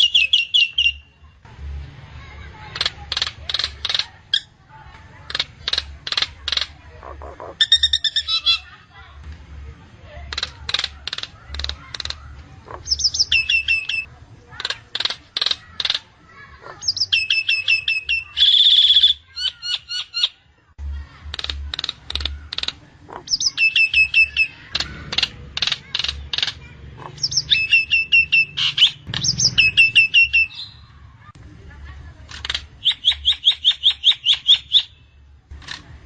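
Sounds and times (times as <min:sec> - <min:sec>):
bird singing whistled notes: 0:00.0 - 0:01.2, 0:12.9 - 0:14.0, 0:16.9 - 0:20.3, 0:27.2 - 0:30.9.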